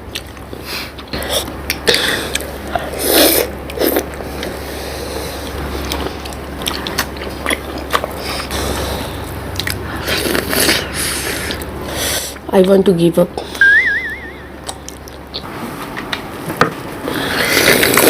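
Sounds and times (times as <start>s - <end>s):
steady low hum: 0.0s - 18.0s
mouth chewing wet food: 0.1s - 11.8s.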